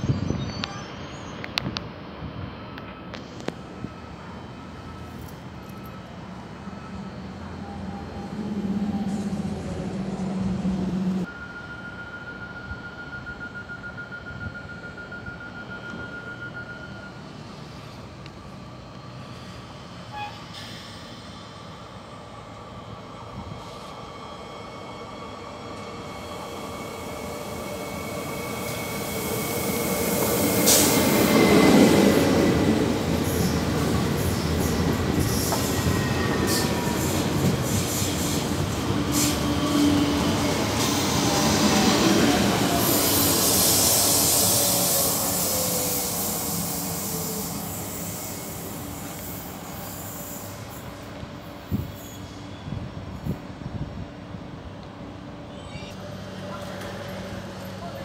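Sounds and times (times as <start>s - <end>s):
train wheels rumbling on rails: 17.5s - 55.2s.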